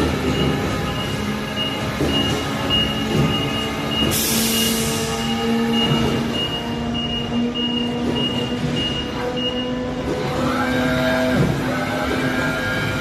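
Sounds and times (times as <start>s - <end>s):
forklift mechanical whine: 0.0s - 13.0s
high beeping tone: 0.2s - 9.8s.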